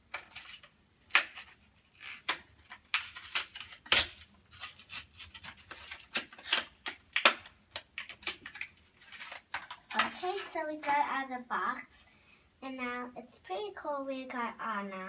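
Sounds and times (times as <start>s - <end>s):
package crinkling and clicking: 0.1s - 10.2s.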